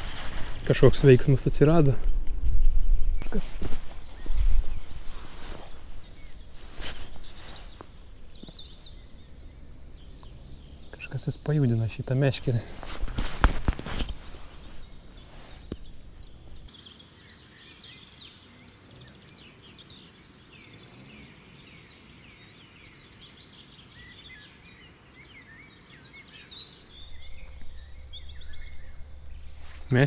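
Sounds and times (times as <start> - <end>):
low rumble: 0.0 - 16.7, 26.9 - 30.0
songbirds chirping: 0.0 - 30.0.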